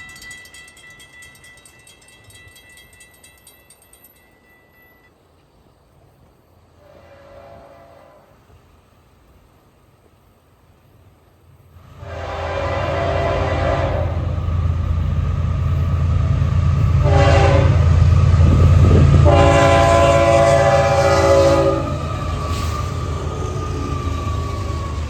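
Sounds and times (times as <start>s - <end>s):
train rumbling: 0.0s - 9.8s, 10.8s - 25.0s
train air horn blasts: 6.8s - 8.4s, 11.9s - 14.4s, 16.9s - 24.4s.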